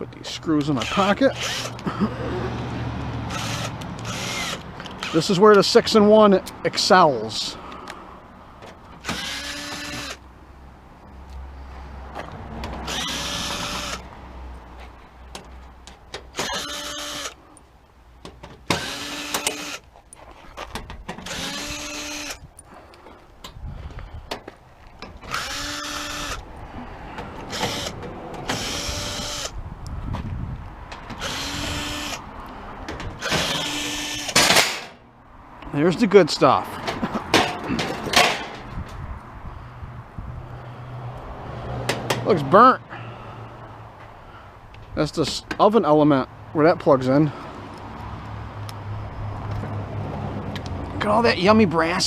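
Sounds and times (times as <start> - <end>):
cordless drill motor whine: 0.8 - 1.8, 3.3 - 5.2, 9.0 - 10.2, 12.9 - 14.0, 16.4 - 17.4, 18.8 - 19.8, 21.3 - 22.4, 25.2 - 26.4, 27.5 - 29.6, 31.2 - 32.2, 33.2 - 34.3
metal clatter: 37.3 - 38.6.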